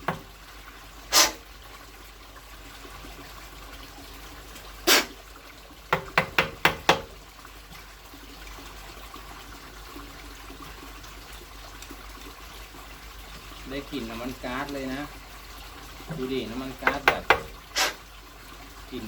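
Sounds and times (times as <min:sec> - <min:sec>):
kerosene trickling: 0:00.0 - 0:19.0
scraping rasp: 0:01.1 - 0:01.4, 0:16.9 - 0:18.0.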